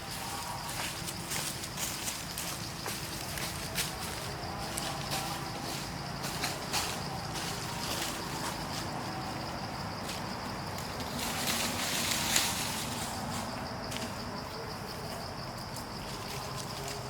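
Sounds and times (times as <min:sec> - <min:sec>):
insects droning: 0:00.0 - 0:17.0
rustling: 0:10.0 - 0:14.2.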